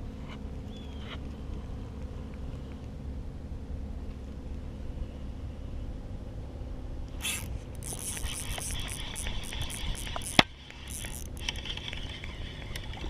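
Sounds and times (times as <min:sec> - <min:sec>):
clicks and scrapes of gear: 0:07.1 - 0:13.0.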